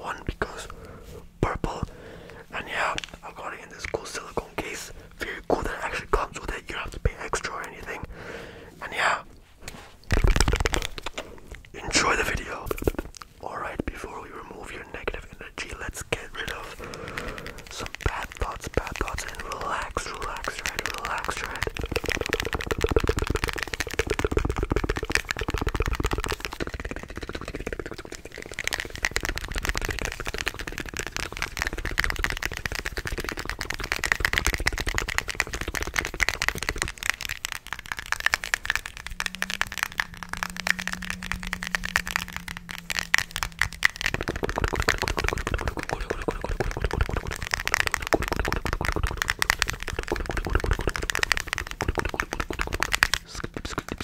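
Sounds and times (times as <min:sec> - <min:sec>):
wet mouth clicks: 0:00.0 - 0:54.0
steady low tone: 0:35.5 - 0:48.2.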